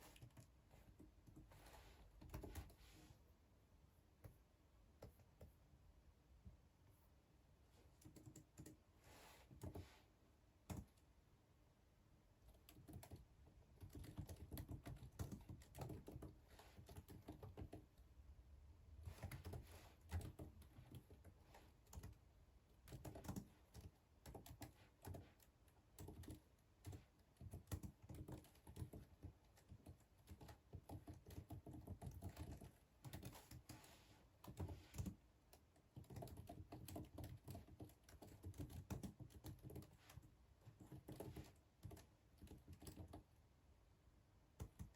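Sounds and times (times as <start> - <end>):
typing on computer keyboard: 0.0 - 1.5, 2.2 - 2.8, 8.0 - 8.8, 9.5 - 9.8, 10.7 - 11.0, 12.5 - 18.0, 19.0 - 22.2, 22.8 - 43.3, 44.6 - 44.9.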